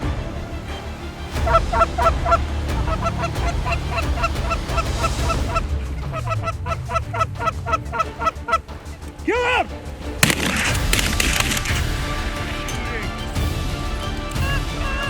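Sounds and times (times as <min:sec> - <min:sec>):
geese honking and clucking: 0:01.3 - 0:09.6.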